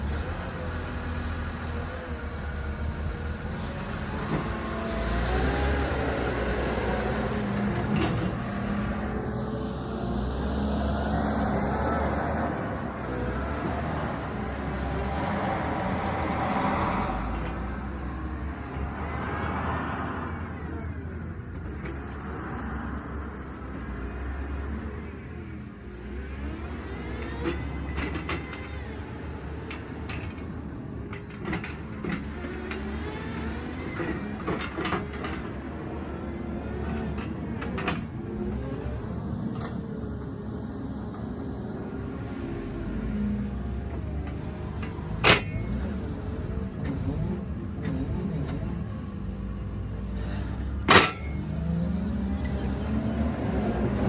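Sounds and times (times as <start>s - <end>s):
wheel loader diesel engine rumble: 0.0s - 54.0s.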